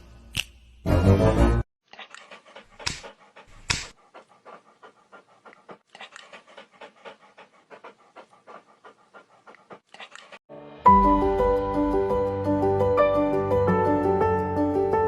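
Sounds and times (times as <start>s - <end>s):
dog panting: 1.9s - 10.4s.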